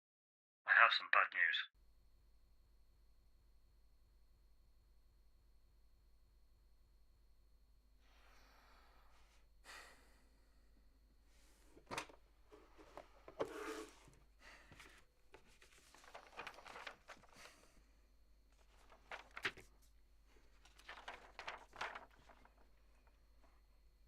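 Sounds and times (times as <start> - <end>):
faint clicks and rustles: 14.8 - 17.7, 18.6 - 23.6.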